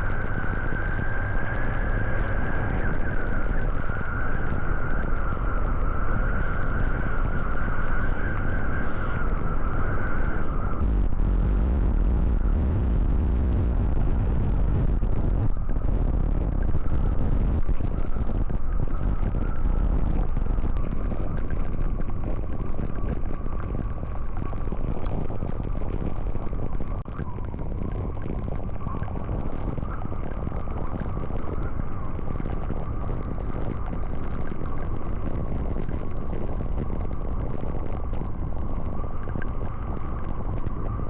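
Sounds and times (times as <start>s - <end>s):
strong wind rushing: 4.5s - 27.1s.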